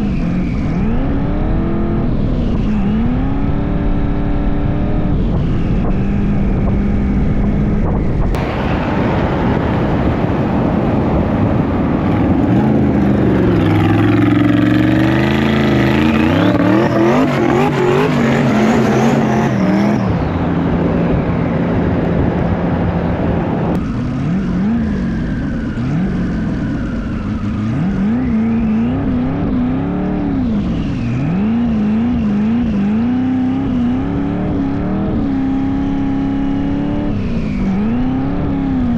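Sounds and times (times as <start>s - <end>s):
car engine revving hard: 11.7s - 20.5s, 23.7s - 38.9s.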